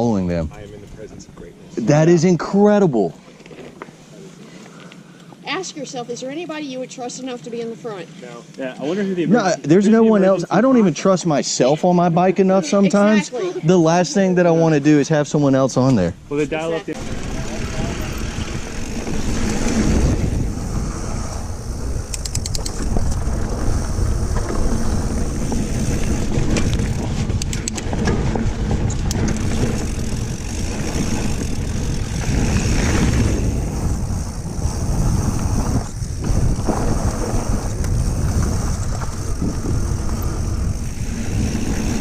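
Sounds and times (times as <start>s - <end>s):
wind buffeting microphone: 16.1s - 42.0s
bike tyres rumbling over dirt: 17.0s - 42.0s
rapid ticking of bike hub: 21.9s - 23.2s.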